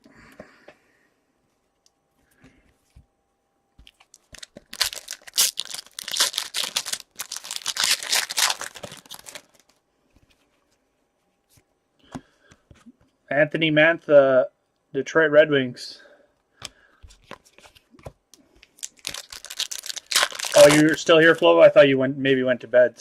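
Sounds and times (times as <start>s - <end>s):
wrapper tearing and crinkling: 4.1s - 9.8s, 18.8s - 21.4s.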